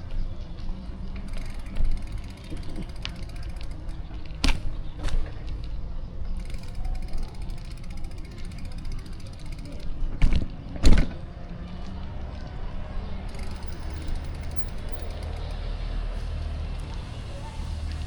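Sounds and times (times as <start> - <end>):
low rumble of wind and road: 0.0 - 18.0
bicycle freewheel ratchet ticking: 1.3 - 4.0, 6.4 - 10.0, 13.3 - 15.7.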